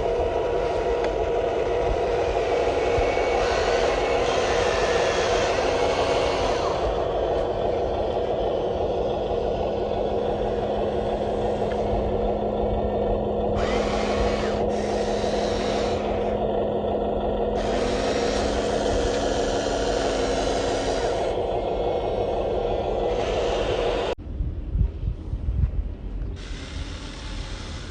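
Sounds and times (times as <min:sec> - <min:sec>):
small electric motors whirring: 0:00.0 - 0:12.4, 0:13.5 - 0:16.7, 0:17.6 - 0:24.2
higher-pitched motor whir: 0:00.0 - 0:24.2.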